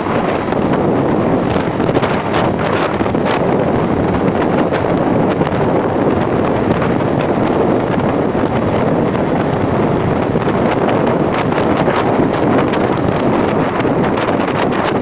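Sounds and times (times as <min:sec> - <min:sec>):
vehicle noise: 0:00.0 - 0:15.0
wind rushing over microphone: 0:00.0 - 0:15.0.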